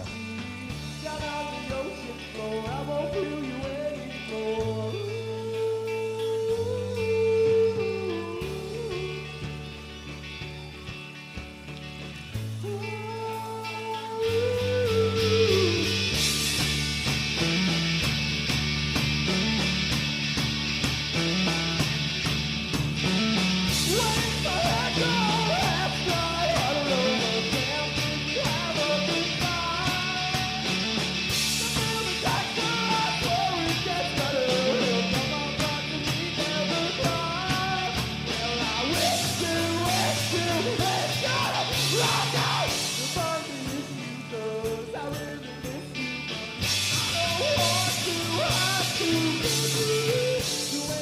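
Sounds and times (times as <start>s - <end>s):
lead vocal singing: 0.0s - 9.7s, 12.6s - 16.7s, 23.7s - 51.0s
rock band playing: 0.0s - 51.0s.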